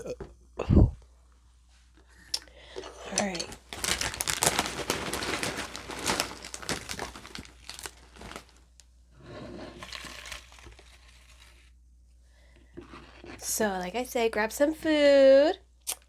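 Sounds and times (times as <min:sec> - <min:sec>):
wrapping crumpling and crackling: 0:03.1 - 0:11.8.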